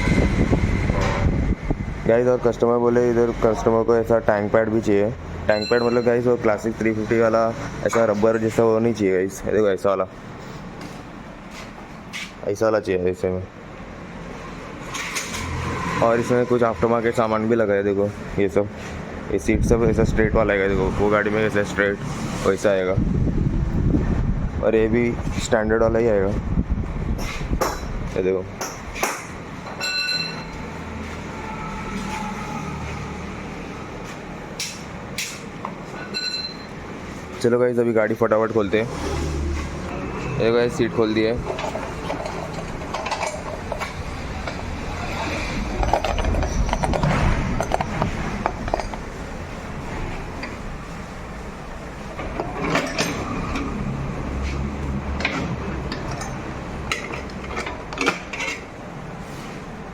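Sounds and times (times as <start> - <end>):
passing vehicle rumble: 0.0 - 5.5, 13.8 - 27.2, 30.6 - 35.2, 38.2 - 57.5
metal tools clinking: 29.6 - 30.7, 34.6 - 36.8, 41.4 - 44.6, 45.7 - 49.0, 52.3 - 53.6, 55.2 - 58.7
high-pitched squeal: 29.9 - 33.6.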